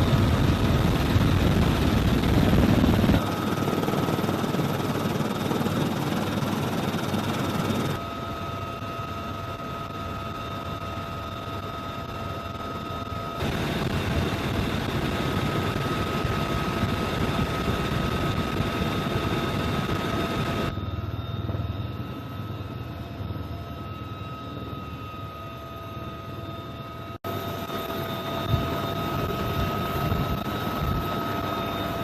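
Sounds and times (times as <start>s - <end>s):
rotor and airflow noise: 0.0s - 8.2s
helicopter turbine whine: 0.0s - 32.0s.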